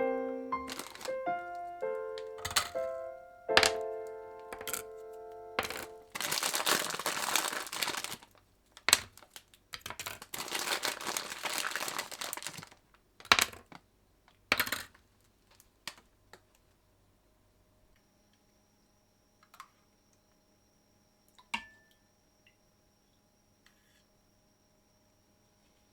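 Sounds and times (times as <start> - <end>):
crinkling and rustling: 0.2 - 14.4.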